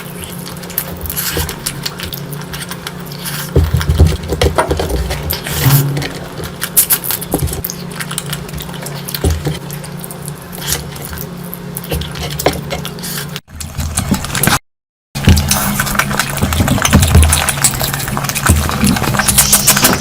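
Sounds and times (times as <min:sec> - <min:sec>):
person chewing food: 0:00.0 - 0:14.6, 0:15.2 - 0:20.0
steady low hum: 0:00.0 - 0:14.6.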